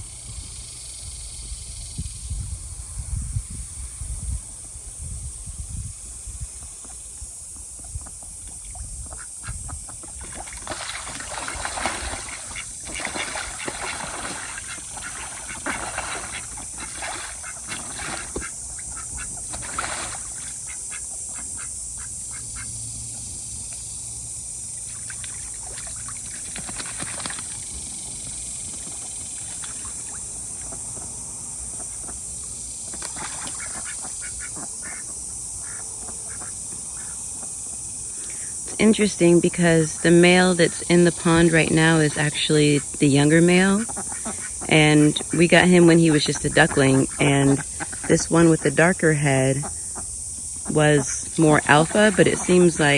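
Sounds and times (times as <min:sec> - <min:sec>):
high-pitched insect drone: 0:00.0 - 0:52.9
ducks quacking: 0:10.8 - 0:22.7, 0:33.2 - 0:37.2, 0:39.4 - 0:52.9.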